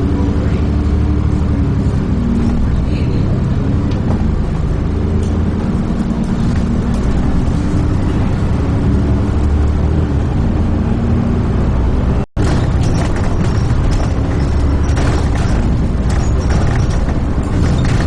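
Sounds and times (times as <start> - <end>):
bus engine running: 0.0 - 18.0
road rumble: 0.0 - 18.0.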